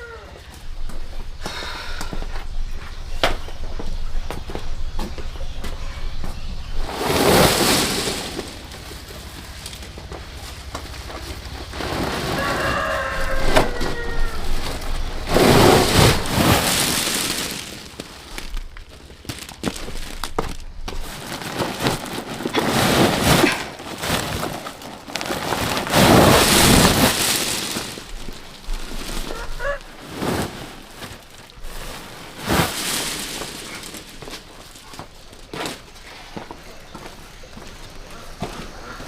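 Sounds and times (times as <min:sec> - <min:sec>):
dry rustling and crackling: 0:02.4 - 0:39.0.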